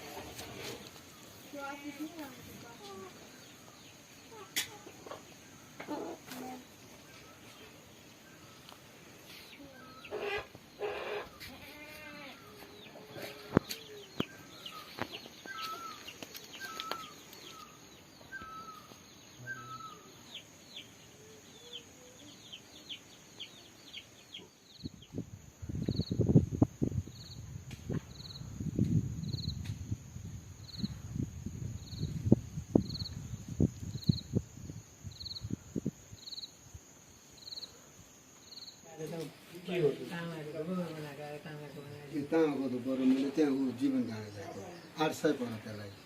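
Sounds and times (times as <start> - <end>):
high insect drone: 0.0 - 46.0
small birds chirping: 0.5 - 26.3
farm animal calls: 9.8 - 13.8, 14.6 - 17.7.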